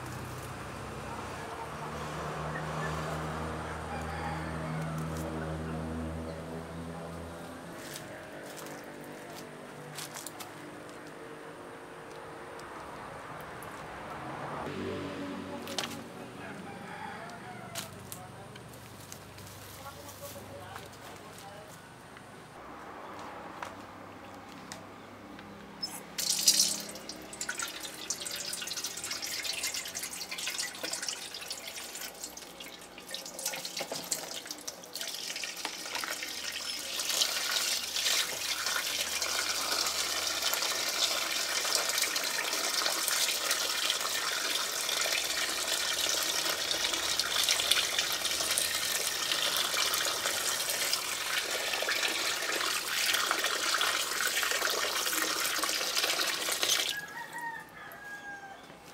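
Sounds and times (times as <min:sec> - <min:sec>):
tap water splashing into basin: 0:26.2 - 0:56.9.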